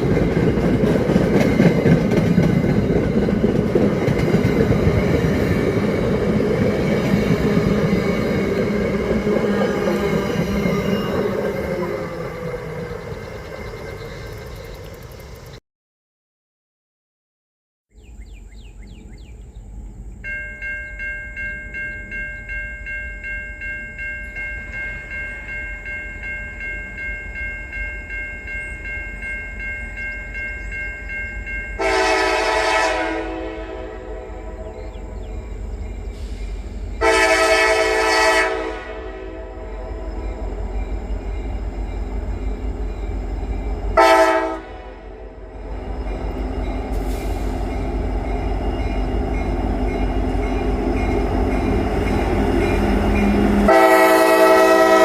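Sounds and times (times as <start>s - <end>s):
train rumbling: 0.0s - 15.6s, 18.0s - 55.0s
pulsing ringing tone: 7.3s - 15.3s, 20.2s - 32.0s
locomotive horn blasts: 31.8s - 34.7s, 37.0s - 40.0s, 44.0s - 45.4s, 53.6s - 55.0s.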